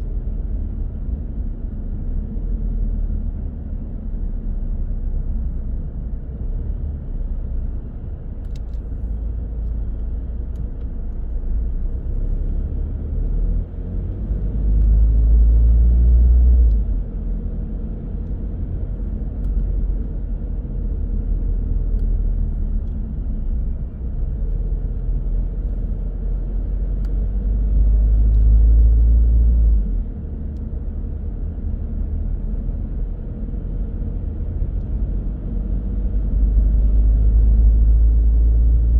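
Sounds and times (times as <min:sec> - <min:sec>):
car tyres and engine rumbling: 0:00.0 - 0:38.9.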